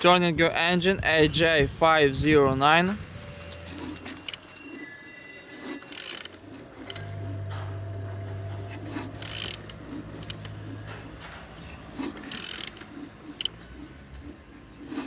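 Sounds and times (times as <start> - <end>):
steady low hum: 1.5 - 5.0, 6.2 - 14.8
engine turned over by hand: 5.6 - 15.0.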